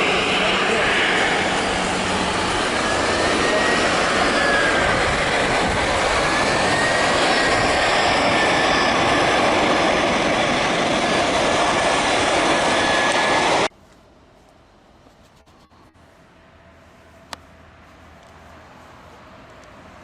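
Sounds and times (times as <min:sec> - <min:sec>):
jet airliner engine noise: 0:00.0 - 0:13.7.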